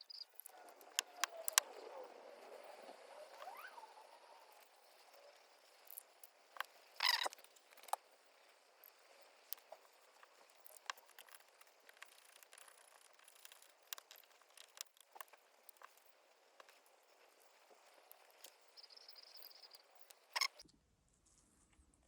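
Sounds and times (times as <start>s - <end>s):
small metal parts clicking: 4.6s - 8.1s, 8.8s - 20.6s.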